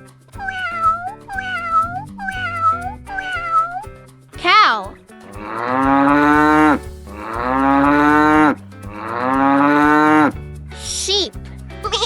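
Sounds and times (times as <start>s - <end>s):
cow mooing: 5.3s - 10.3s.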